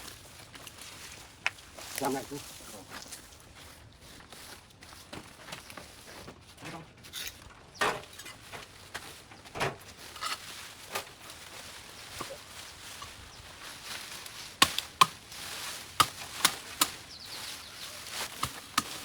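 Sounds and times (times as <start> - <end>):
brush rustling: 0.0 - 6.3, 8.0 - 19.0
sharp cutting strikes: 14.6 - 15.2.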